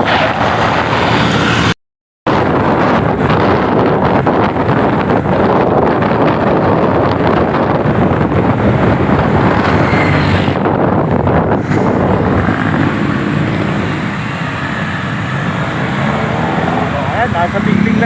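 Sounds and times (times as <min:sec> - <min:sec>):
wind rushing over microphone: 0:00.0 - 0:18.0
motorcycle engine running: 0:07.6 - 0:18.0.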